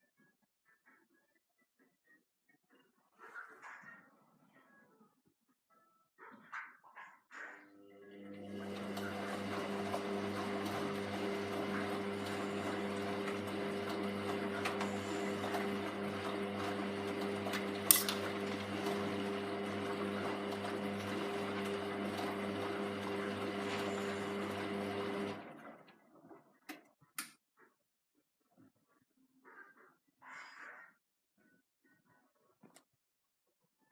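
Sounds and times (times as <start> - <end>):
washing machine motor hum: 8.1 - 26.5
load turning in drum: 17.8 - 18.4.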